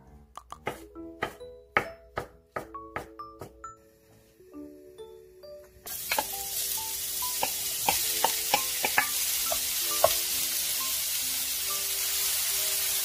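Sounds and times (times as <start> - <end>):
mushrooms sizzling in hot oil: 5.9 - 13.0
wooden spoon clacking on pan: 7.4 - 10.2.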